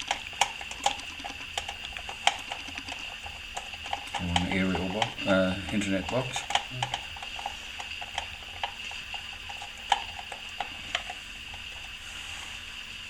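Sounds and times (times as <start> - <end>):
faint steady hiss: 3.9 - 13.0.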